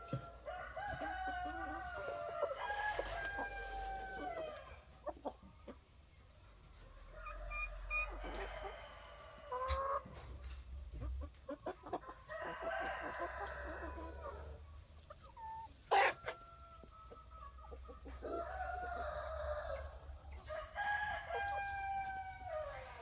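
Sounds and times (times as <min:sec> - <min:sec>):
roosters crowing: 0:00.0 - 0:04.9, 0:07.0 - 0:10.2, 0:12.0 - 0:14.6, 0:18.0 - 0:23.0
hens clucking: 0:00.0 - 0:23.0.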